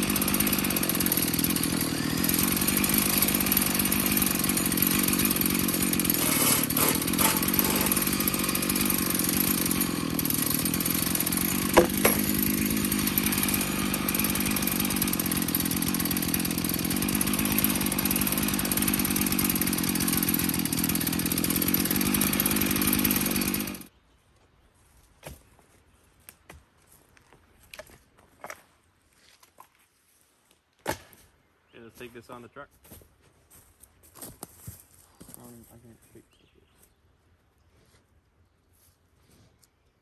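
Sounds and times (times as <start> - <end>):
chainsaw cutting log: 0.0 - 23.9.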